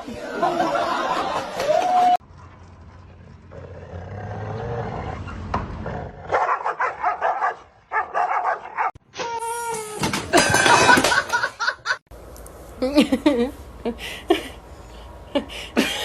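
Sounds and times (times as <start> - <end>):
dog barking: 6.3 - 9.0.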